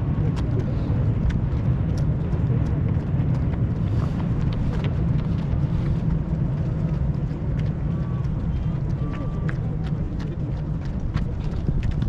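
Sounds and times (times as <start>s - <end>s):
runners' footsteps tapping: 0.0s - 12.0s.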